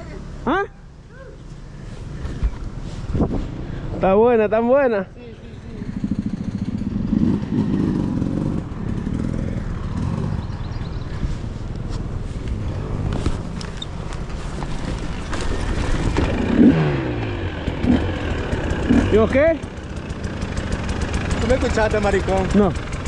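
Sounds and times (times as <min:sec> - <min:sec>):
dirt bike engine revving: 0:05.3 - 0:11.5, 0:15.0 - 0:23.0.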